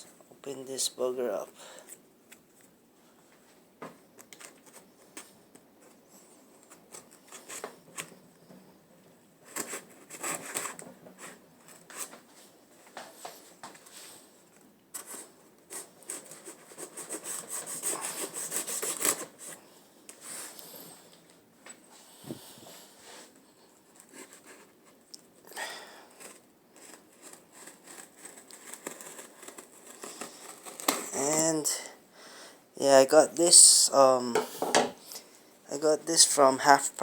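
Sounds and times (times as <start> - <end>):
packaging scraping and rubbing: 9.4 - 12.2, 15.0 - 19.6, 23.8 - 25.1, 26.1 - 31.3.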